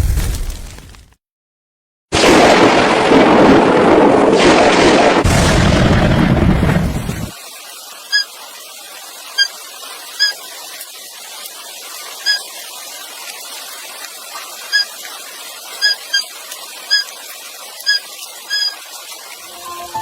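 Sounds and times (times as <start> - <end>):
steady rain hiss: 2.3 - 20.0
high squeaking chirps: 9.4 - 9.6, 10.2 - 10.4, 12.2 - 12.5, 14.7 - 15.0, 15.7 - 16.3, 16.9 - 17.1, 17.8 - 18.8
music: 19.5 - 20.0.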